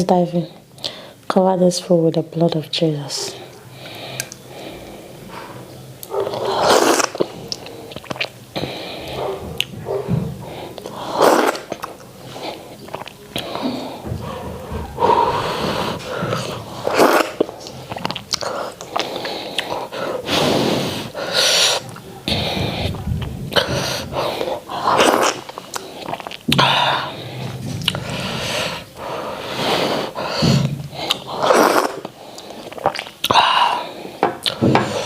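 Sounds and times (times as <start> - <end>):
wet smacking and chewing: 6.0 - 10.1, 10.8 - 20.0, 21.8 - 26.7, 27.5 - 28.3, 30.9 - 33.4, 34.4 - 34.6.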